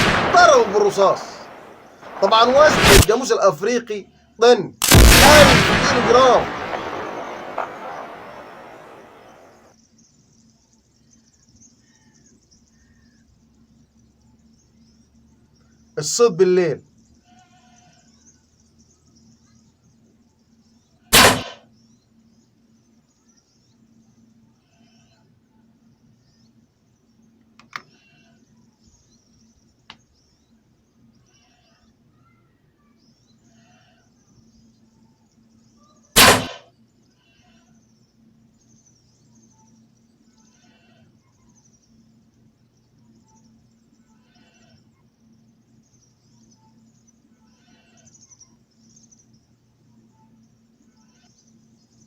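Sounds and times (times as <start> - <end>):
gunshot: 0.0 - 3.1, 4.8 - 9.6, 21.2 - 21.6, 36.2 - 36.7
faint high chirping calls: 0.0 - 52.0.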